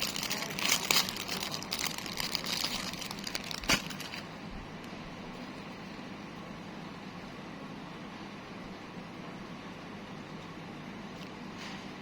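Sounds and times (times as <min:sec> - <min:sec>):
rustling and clicking handling: 0:00.0 - 0:04.3.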